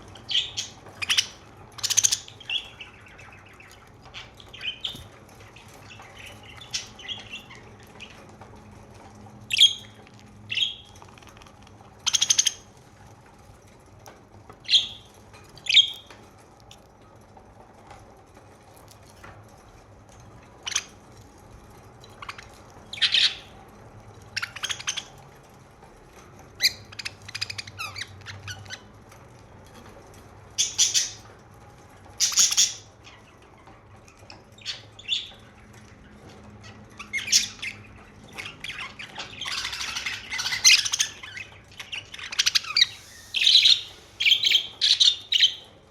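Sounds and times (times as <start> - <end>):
budgerigars chirping and squawking: 0.1 - 8.4, 9.5 - 12.8, 14.7 - 16.1, 22.2 - 23.6, 24.2 - 25.2, 26.6 - 28.9, 30.6 - 31.3, 32.2 - 45.8.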